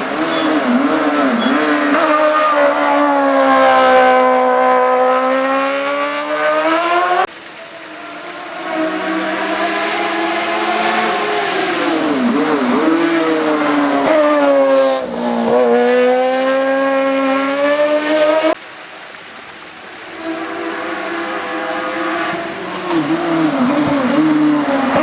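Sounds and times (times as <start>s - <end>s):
another engine: 0.0s - 18.5s
race car engine at full throttle: 0.0s - 18.6s, 20.1s - 25.0s.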